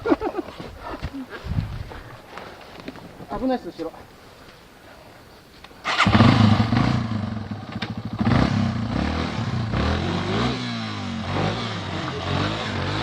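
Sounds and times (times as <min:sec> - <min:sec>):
off-road motorcycle engine: 0:05.8 - 0:13.0.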